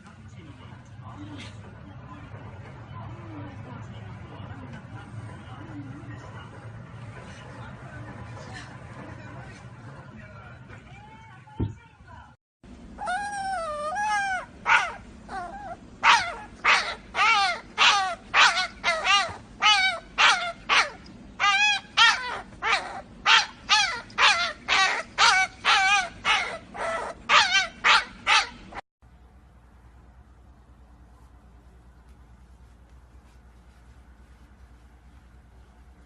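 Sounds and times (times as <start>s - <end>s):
dog yipping and whining: 13.0s - 28.8s.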